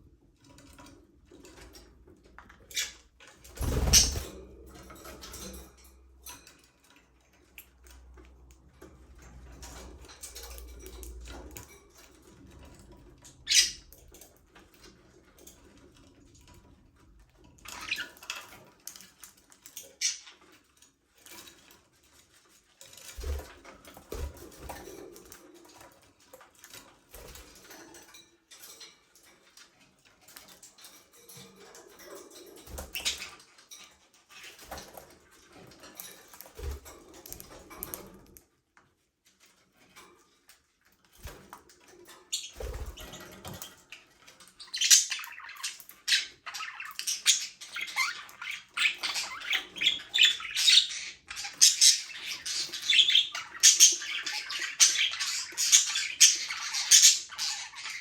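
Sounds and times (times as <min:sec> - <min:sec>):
budgerigars chirping: 0:03.6 - 0:04.2, 0:44.6 - 0:58.0.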